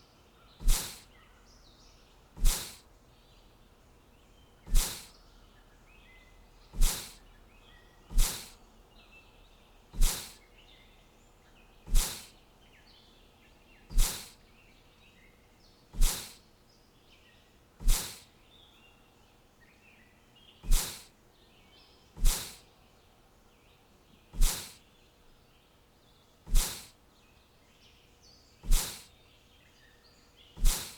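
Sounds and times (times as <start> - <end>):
faint bird chirps: 0.0 - 30.9.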